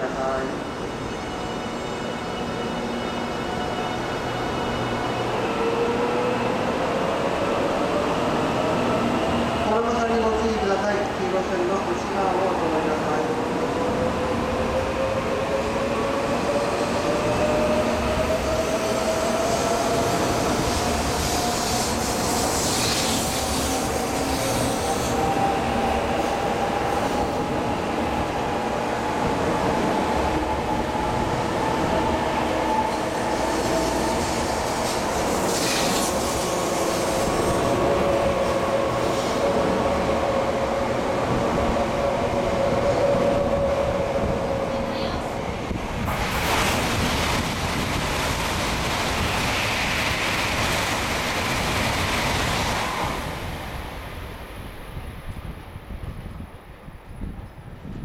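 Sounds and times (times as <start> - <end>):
wheels rumbling on rail: 14.4 - 58.0.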